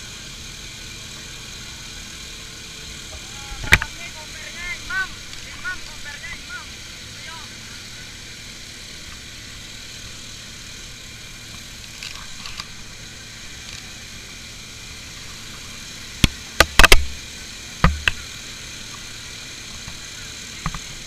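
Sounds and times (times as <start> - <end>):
vehicle running: 0.0 - 21.0
sharp knocks: 17.8 - 18.2.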